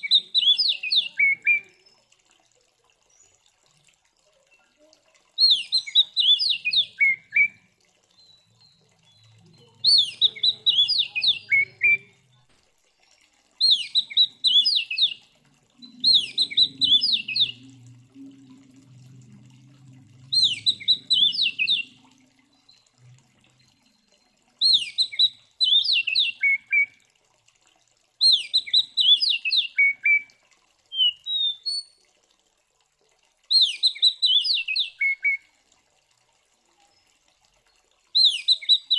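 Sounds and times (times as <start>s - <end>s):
magpie-robin singing: 0.0s - 1.6s, 9.8s - 12.2s, 13.6s - 15.2s, 15.9s - 17.6s, 20.3s - 22.0s, 24.6s - 26.8s, 28.2s - 30.2s, 33.5s - 35.4s, 38.2s - 38.9s.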